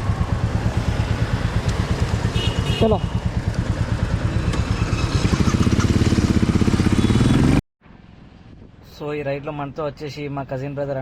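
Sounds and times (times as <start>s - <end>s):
motorcycle engine revving: 0.0s - 7.6s.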